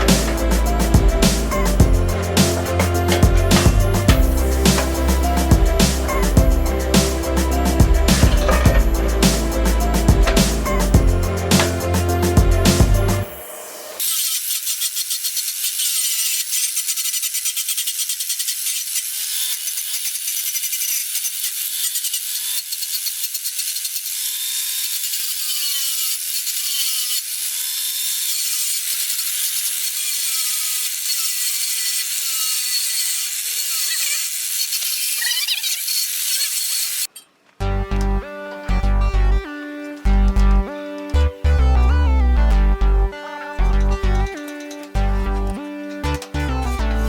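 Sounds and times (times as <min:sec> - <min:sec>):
metal tool rasping on iron: 0:00.0 - 0:13.2.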